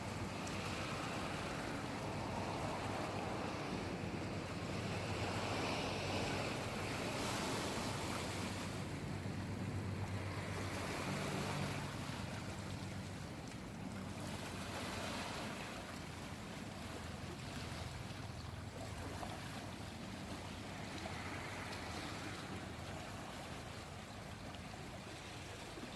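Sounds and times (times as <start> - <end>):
waves washing: 0.0 - 25.9.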